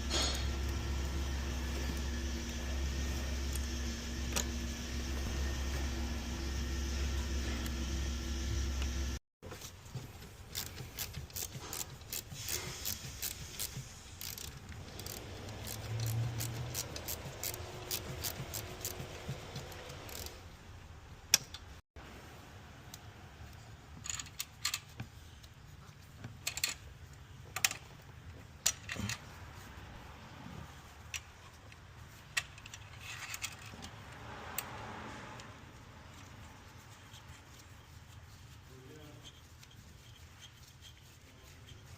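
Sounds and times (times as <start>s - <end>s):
soft rustle: 35.8s - 41.9s.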